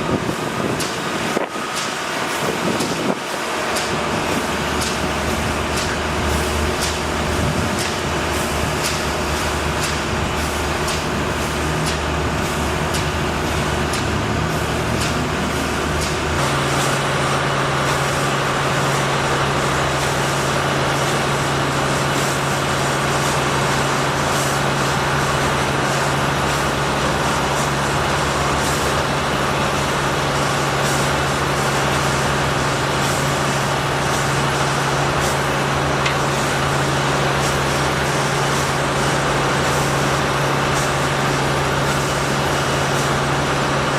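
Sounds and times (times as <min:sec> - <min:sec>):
heavy engine running: 0:00.0 - 0:43.9
street noise: 0:00.0 - 0:43.9.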